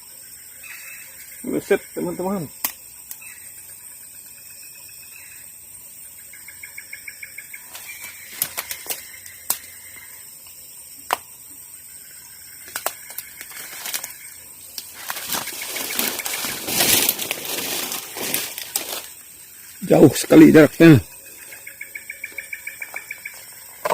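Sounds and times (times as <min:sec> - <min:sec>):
trilled chirping: 0:12.5 - 0:18.6
rustling noise: 0:14.8 - 0:19.2.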